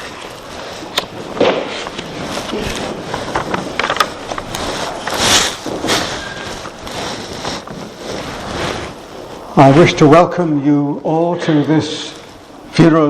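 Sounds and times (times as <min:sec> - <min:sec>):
clothes rustling: 0:00.0 - 0:10.1
people shuffling: 0:00.0 - 0:10.1
seats knocking and scraping: 0:01.1 - 0:09.1.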